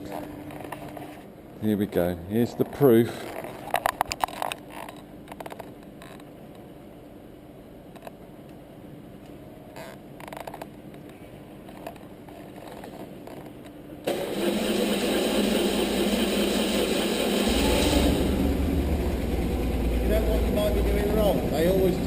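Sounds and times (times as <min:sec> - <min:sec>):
clicks and handling noises: 0:00.0 - 0:01.3, 0:02.6 - 0:06.7, 0:07.9 - 0:08.6, 0:09.2 - 0:13.8
faint steady hum: 0:00.0 - 0:14.1
motorcycle engine starting and running: 0:14.1 - 0:22.0.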